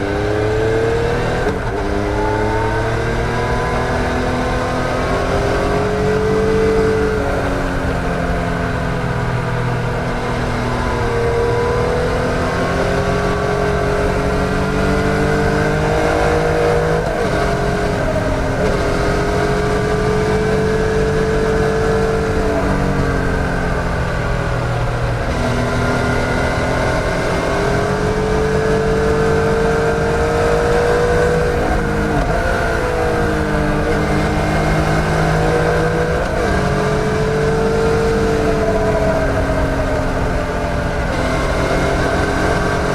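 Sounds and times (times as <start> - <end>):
motorcycle engine accelerating: 0.0 - 42.9.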